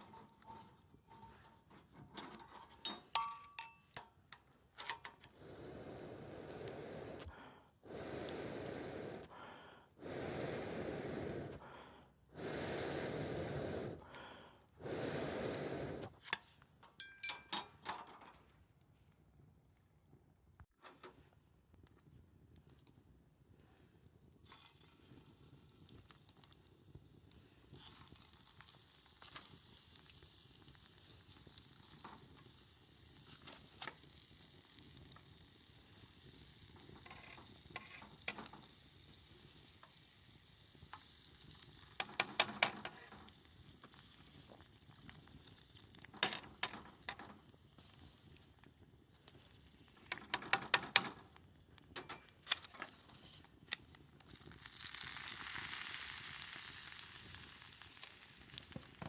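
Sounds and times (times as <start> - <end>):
stew sizzling in a pot: 10.0 - 16.2, 24.4 - 59.0
sharp clicks and knocks: 50.1 - 51.2.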